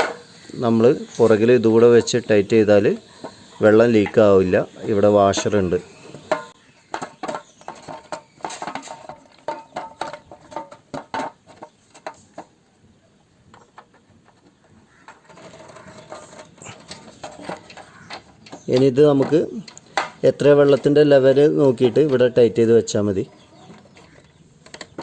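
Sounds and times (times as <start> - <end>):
metal parts clicking and clinking: 15.1 - 22.4.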